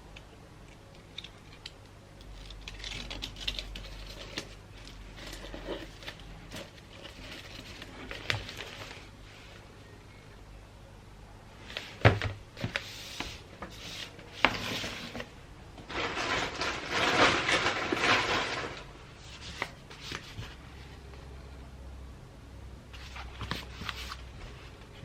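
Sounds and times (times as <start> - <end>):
paper rustling and crinkling: 2.4 - 9.1, 11.6 - 20.7, 22.9 - 25.0.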